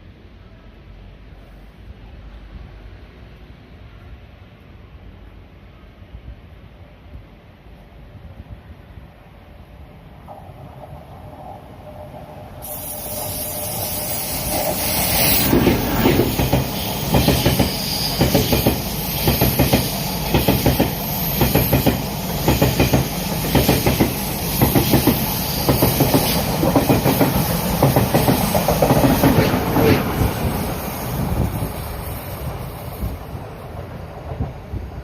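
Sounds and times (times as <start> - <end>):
train wheels clickety-clack: 14.0 - 34.9.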